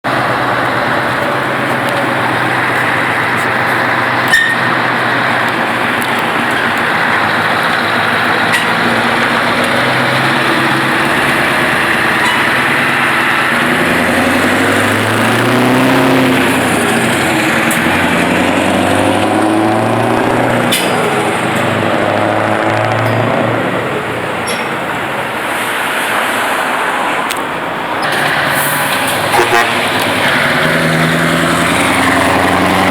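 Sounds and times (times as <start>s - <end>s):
engine running: 0.0s - 32.9s.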